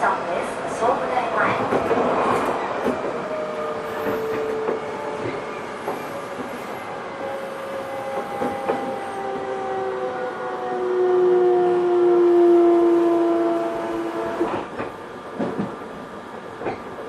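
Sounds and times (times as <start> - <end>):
wheel and rail rumble: 0.0 - 9.5
rail joint clicks: 1.4 - 6.8, 8.0 - 9.5, 14.2 - 17.0
electric train inverter tones: 2.6 - 14.8.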